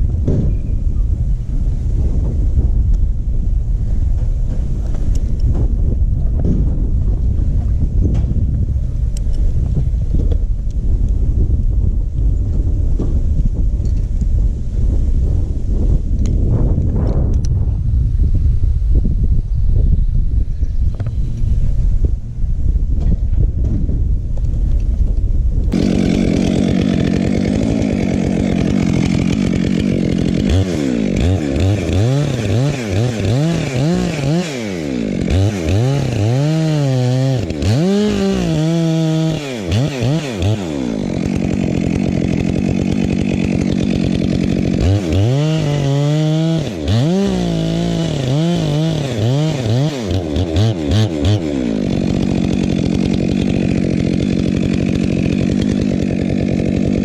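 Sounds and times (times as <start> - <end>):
chainsaw cutting wood: 25.1 - 57.0.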